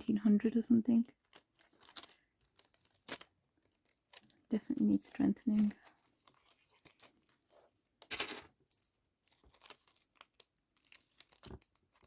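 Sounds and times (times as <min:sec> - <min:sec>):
paper rustling: 0:05.1 - 0:08.3, 0:09.2 - 0:12.0.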